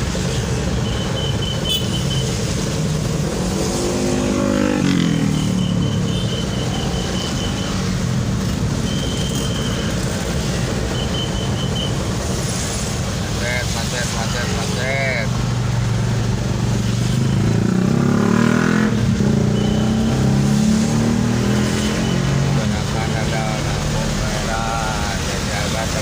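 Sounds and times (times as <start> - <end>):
road traffic engines: 0.0 - 26.0
vehicle engine revving: 1.7 - 11.0, 12.0 - 26.0
high rapid beeping: 19.4 - 20.4.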